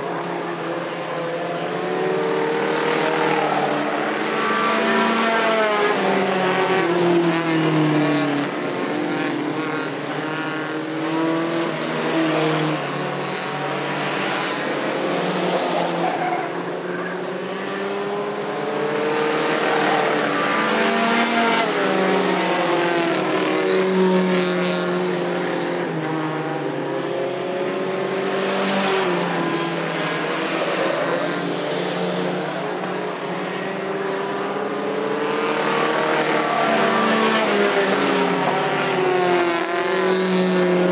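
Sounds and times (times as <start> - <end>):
mini truck engines racing: 0.0 - 40.9.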